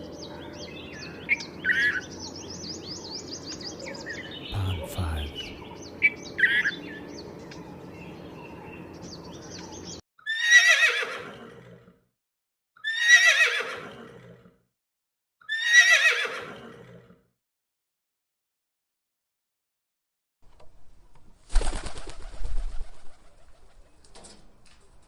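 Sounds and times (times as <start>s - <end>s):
horse whinnying: 10.2s - 11.6s, 12.8s - 14.2s, 15.4s - 16.9s.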